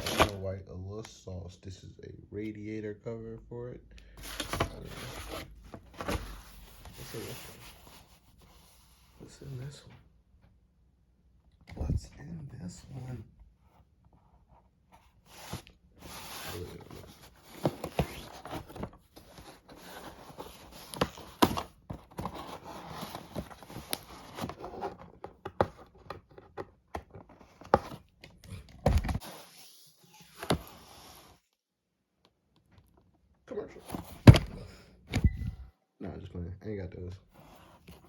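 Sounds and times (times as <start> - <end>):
packaging rustling and scraping: 0.0 - 0.4, 4.2 - 8.8, 15.2 - 26.0, 27.1 - 31.4.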